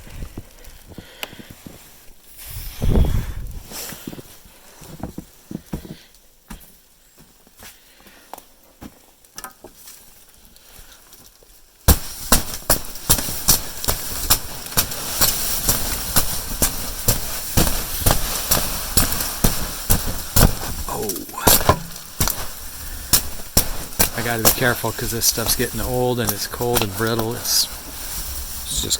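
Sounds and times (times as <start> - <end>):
crunching footsteps: 0.0 - 28.9
plastic tarp crackling: 11.7 - 28.9
tarp being struck: 11.9 - 28.9.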